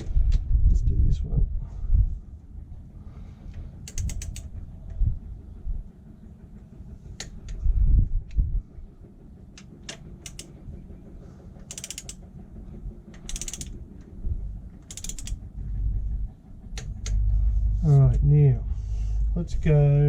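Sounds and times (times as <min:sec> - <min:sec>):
wrench knocking on bolt: 0:03.8 - 0:04.5, 0:09.6 - 0:10.6, 0:11.7 - 0:12.2, 0:13.1 - 0:13.8, 0:14.8 - 0:15.4
rapid ratcheting of wrench: 0:03.8 - 0:04.7, 0:09.5 - 0:10.8, 0:11.6 - 0:14.1, 0:14.7 - 0:16.0.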